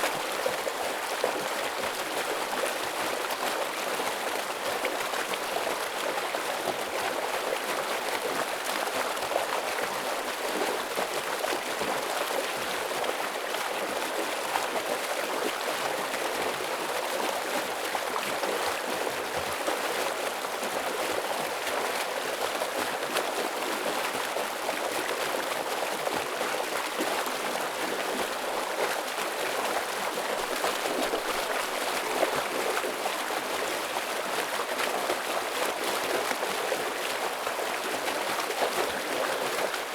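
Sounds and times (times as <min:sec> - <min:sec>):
stream water rushing: 0:24.2 - 0:39.9.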